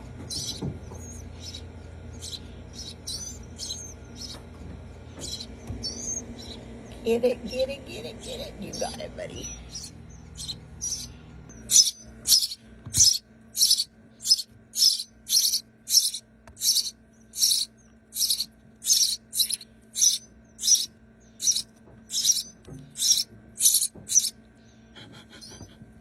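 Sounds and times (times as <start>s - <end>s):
nestling birds begging calls: 0.0s - 25.7s.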